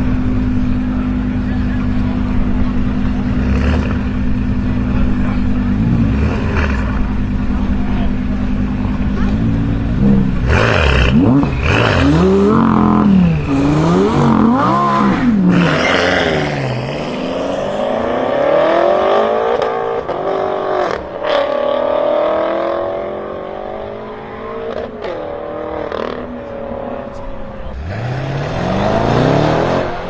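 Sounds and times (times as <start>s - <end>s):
car accelerating hard: 0.0s - 30.0s
car engine revving: 0.0s - 30.0s
exhaust cracks: 0.8s - 18.1s.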